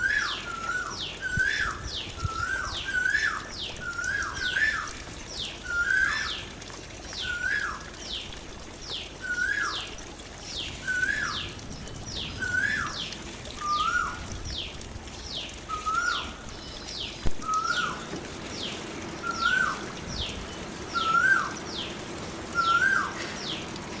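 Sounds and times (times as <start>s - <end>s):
songbirds calling: 0.0s - 24.0s
water splashing in a birdbath: 0.0s - 24.0s.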